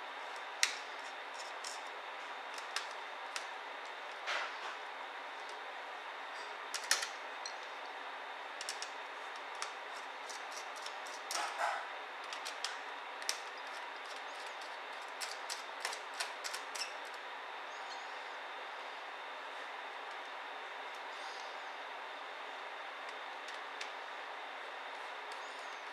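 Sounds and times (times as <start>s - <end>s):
clicks of tools and laptop parts: 6.7s - 7.6s, 8.6s - 16.9s.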